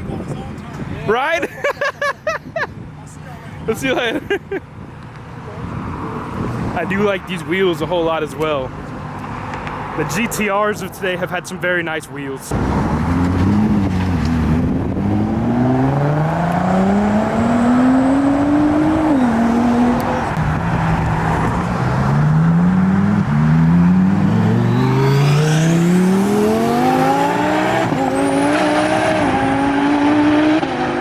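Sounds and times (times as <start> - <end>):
car engine accelerating: 12.5 - 31.0
high rising whistle: 24.3 - 29.2.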